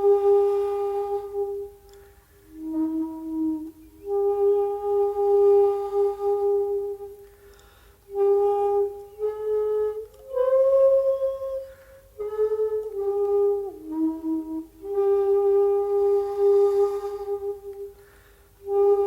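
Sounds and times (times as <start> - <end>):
bamboo flute long notes: 0.0 - 19.0.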